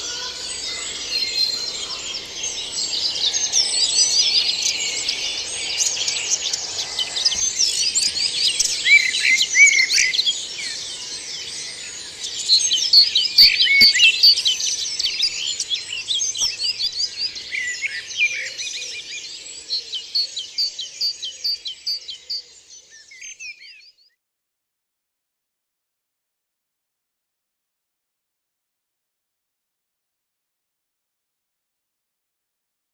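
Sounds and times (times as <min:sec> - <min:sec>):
many birds singing: 0:00.0 - 0:24.2.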